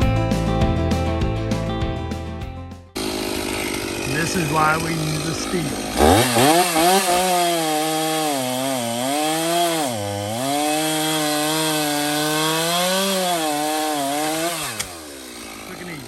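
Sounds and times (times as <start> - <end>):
chainsaw cutting wood: 3.0 - 16.0.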